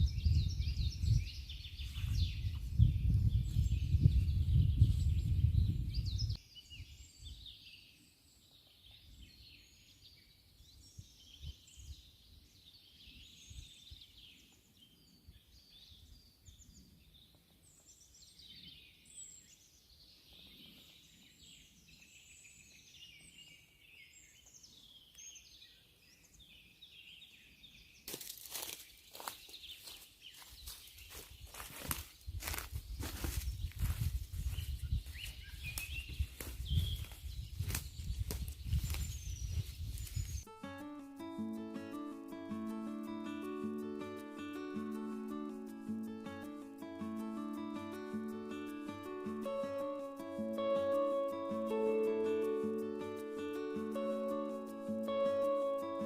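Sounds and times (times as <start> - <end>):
birds singing: 0.0 - 40.5.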